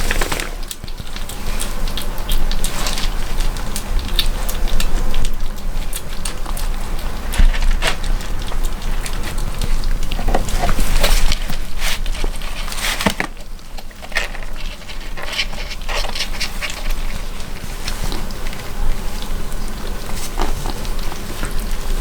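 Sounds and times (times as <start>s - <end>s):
kittens licking and chewing: 0.0s - 22.0s.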